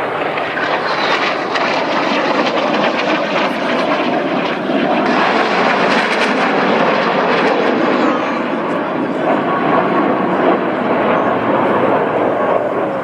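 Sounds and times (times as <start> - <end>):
jet fighters flying low: 0.0 - 13.0.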